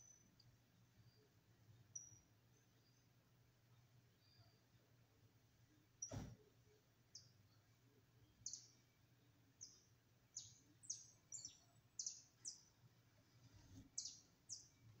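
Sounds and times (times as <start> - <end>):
small bird chirping: 0.0 - 3.2, 7.1 - 12.8, 13.9 - 15.0.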